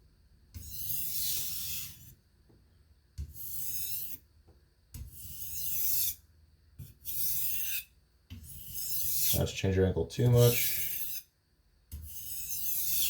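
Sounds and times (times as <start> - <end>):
knife scraping on a whetstone: 0.6 - 2.2, 3.3 - 4.2, 5.1 - 6.2, 6.8 - 9.6, 10.4 - 11.3, 11.9 - 13.0.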